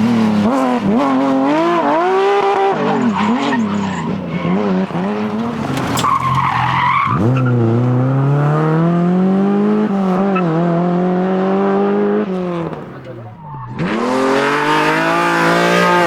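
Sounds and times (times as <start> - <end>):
rally car engine revving: 0.0 - 16.0
tyre screech: 2.8 - 7.8.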